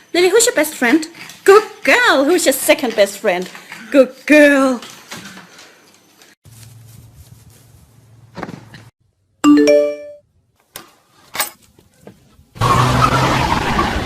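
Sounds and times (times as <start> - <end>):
three-note electronic chime: 9.5 - 10.2.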